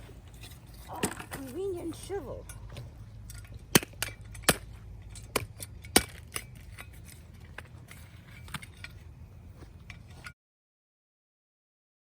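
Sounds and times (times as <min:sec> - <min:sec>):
steady low rumble: 0:00.0 - 0:10.2
sharp clicks and knocks: 0:02.4 - 0:09.0.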